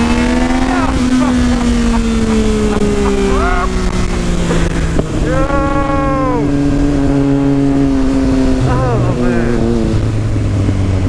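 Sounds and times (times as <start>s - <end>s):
motorcycle engine running: 0.0s - 11.0s
person calling out: 0.5s - 1.5s, 3.2s - 3.8s, 5.2s - 6.6s, 8.7s - 9.8s.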